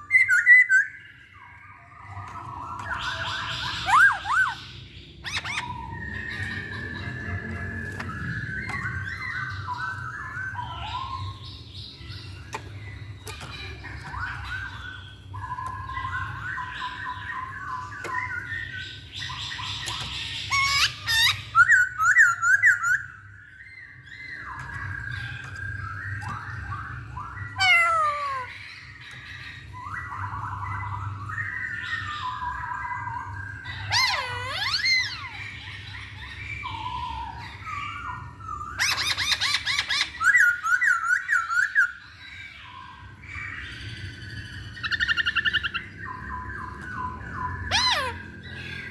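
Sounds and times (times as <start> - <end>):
bird singing whistled notes: 0.0 - 13.1
bird whistled calls: 0.0 - 13.1, 14.1 - 48.9.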